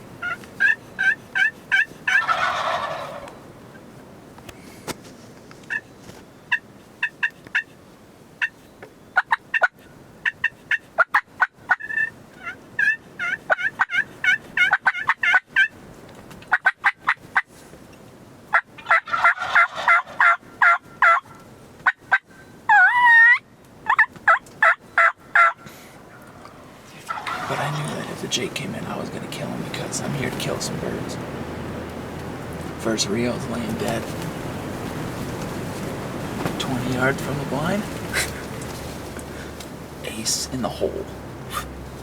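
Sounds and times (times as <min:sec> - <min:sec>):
turkey clucks and cutts: 0:00.2 - 0:03.5, 0:05.6 - 0:05.9, 0:06.5 - 0:07.8, 0:08.4 - 0:15.8, 0:16.4 - 0:17.5, 0:18.5 - 0:31.2, 0:31.9 - 0:39.8
turkey yelps: 0:00.2 - 0:03.5, 0:08.4 - 0:08.6, 0:09.2 - 0:15.7, 0:16.5 - 0:17.2, 0:18.5 - 0:28.2
turkey gobble: 0:00.2 - 0:03.6, 0:06.5 - 0:07.7, 0:09.2 - 0:15.8, 0:16.5 - 0:17.5, 0:18.5 - 0:31.2.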